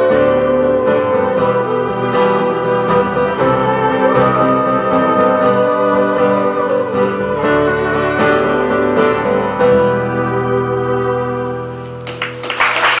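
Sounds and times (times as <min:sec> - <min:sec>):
sustained keyboard chords: 0:00.0 - 0:12.1
audience applause: 0:12.0 - 0:13.0.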